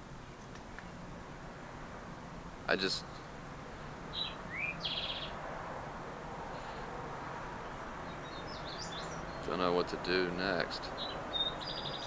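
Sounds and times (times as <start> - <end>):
outdoor background noise: 0.0 - 12.0
small bird chirping: 4.1 - 5.4, 7.6 - 9.5, 10.9 - 12.0.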